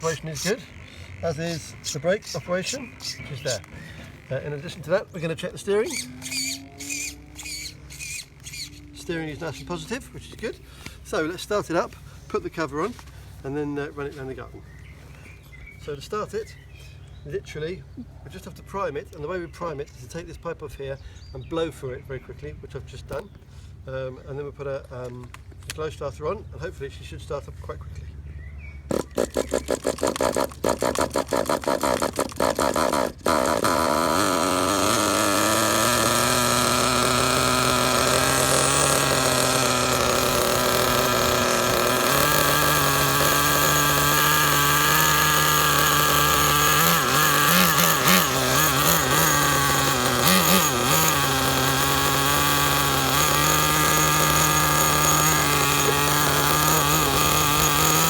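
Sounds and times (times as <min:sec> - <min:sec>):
small nitro engine starting: 0:00.0 - 0:13.9, 0:28.4 - 0:58.0.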